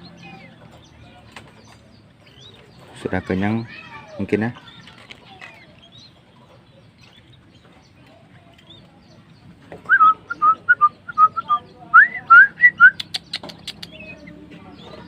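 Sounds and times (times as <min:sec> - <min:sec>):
sharp clicks: 0:12.9 - 0:14.0.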